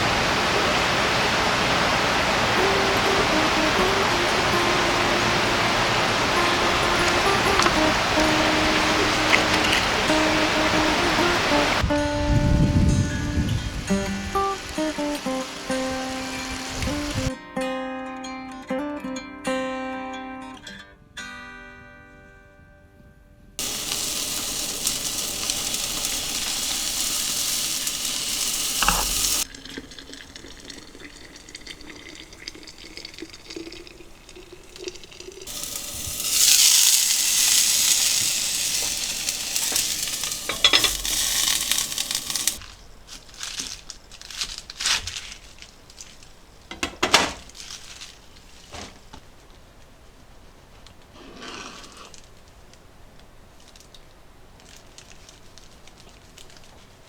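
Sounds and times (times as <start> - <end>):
food sizzling in a pan: 0.0 - 11.9, 12.6 - 17.3, 23.6 - 42.6
cooking utensils clicking and knocking: 7.0 - 10.4, 23.6 - 29.5, 34.8 - 42.6, 46.7 - 47.5.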